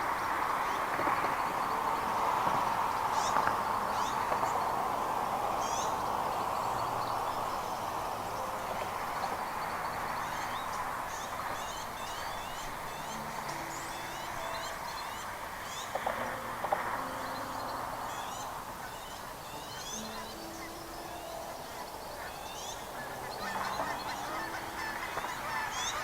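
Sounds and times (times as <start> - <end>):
birds chirping: 5.6 - 26.0.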